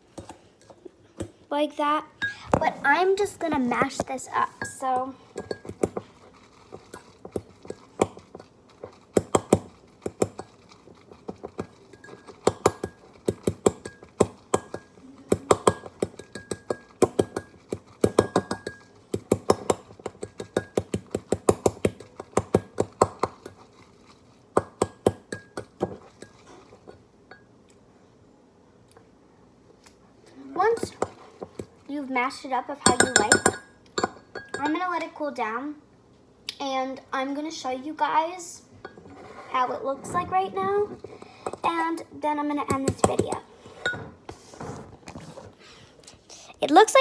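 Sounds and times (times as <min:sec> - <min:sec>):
metal fork clinking in mug: 0:32.8 - 0:34.7.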